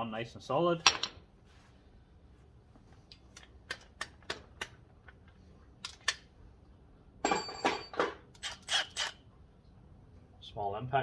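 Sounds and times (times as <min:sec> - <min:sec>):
tools clattering: 0:07.2 - 0:08.2.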